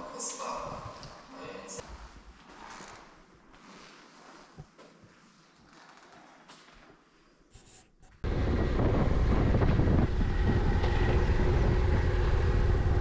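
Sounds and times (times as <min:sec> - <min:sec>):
motorcycle engine: 0:08.2 - 0:13.0
road rumble: 0:08.2 - 0:13.0
wind: 0:08.2 - 0:13.0.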